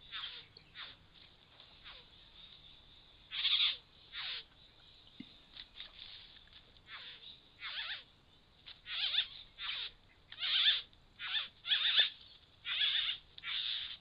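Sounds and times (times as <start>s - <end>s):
bird harsh chattering calls: 0.0s - 1.1s, 1.7s - 2.2s, 3.3s - 4.6s, 6.9s - 14.0s.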